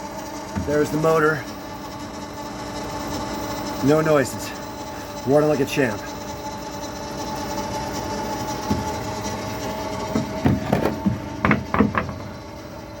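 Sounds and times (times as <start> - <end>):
electric motor whine: 0.0 - 13.0
knocks and clatters: 10.1 - 12.4.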